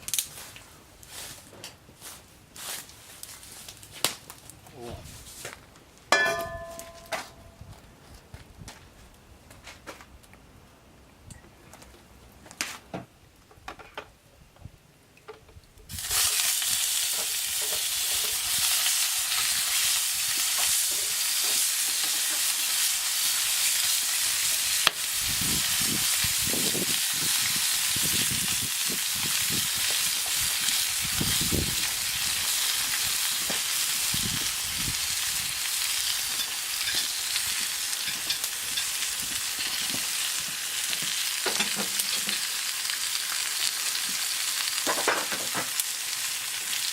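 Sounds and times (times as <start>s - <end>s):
food sizzling in a pan: 15.9s - 46.9s.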